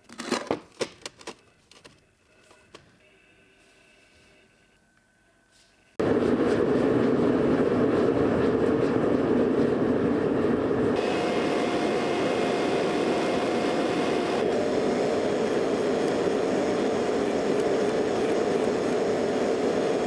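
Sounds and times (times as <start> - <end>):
workshop machine loud rushing: 6.0 - 20.0.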